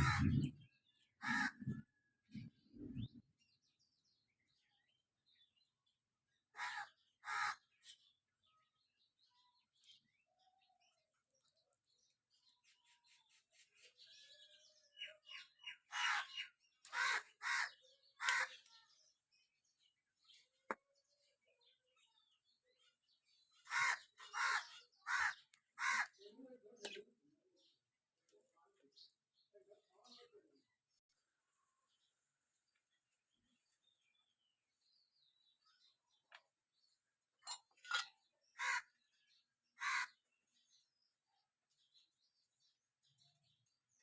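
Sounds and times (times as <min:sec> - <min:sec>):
harsh bird calls: 0:00.0 - 0:03.2, 0:06.5 - 0:08.1, 0:12.5 - 0:19.0, 0:23.4 - 0:27.0, 0:37.4 - 0:40.3.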